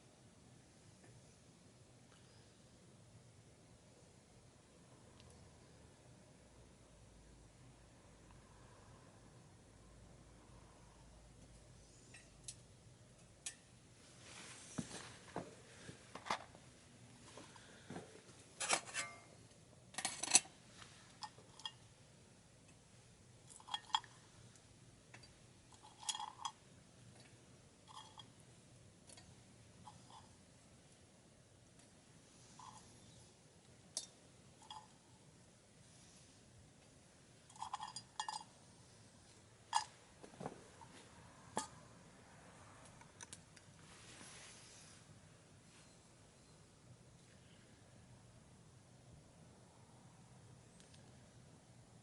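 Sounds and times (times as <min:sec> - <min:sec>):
metal cookware clinking: 0:18.6 - 0:19.3, 0:20.0 - 0:20.6.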